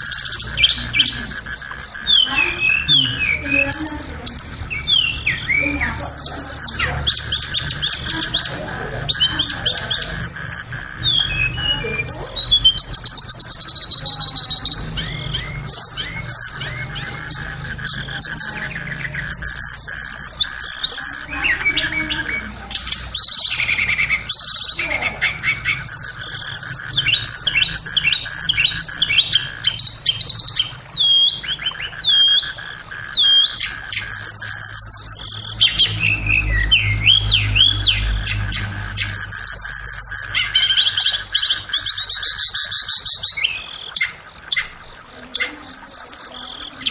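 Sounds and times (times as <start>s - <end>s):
bird chirps and trills: 0.0s - 46.9s
steady background hum: 0.0s - 46.9s.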